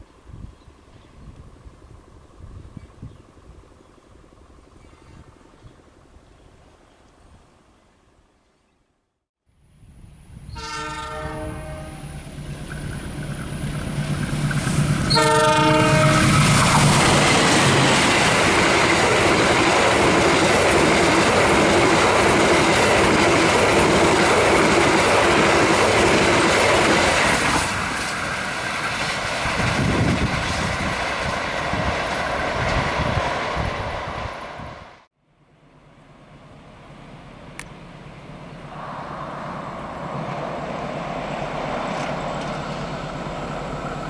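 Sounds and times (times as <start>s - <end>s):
train wheels rushing on rails: 10.4s - 35.1s, 36.6s - 44.0s
diesel locomotive horn blasts: 10.5s - 12.2s, 15.1s - 16.6s.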